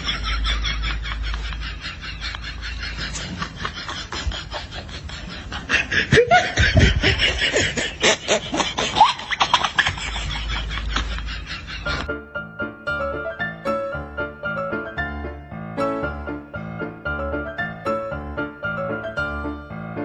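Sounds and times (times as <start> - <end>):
snickering laughter: 0.0 - 12.1.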